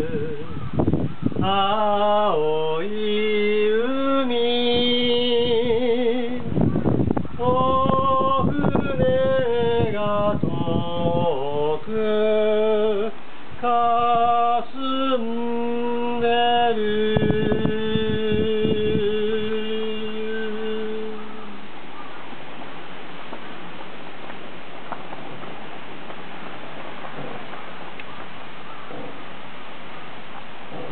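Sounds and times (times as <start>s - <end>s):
person singing with vibrato: 0.0s - 6.7s, 7.3s - 21.7s
wind hitting microphone: 0.0s - 30.9s.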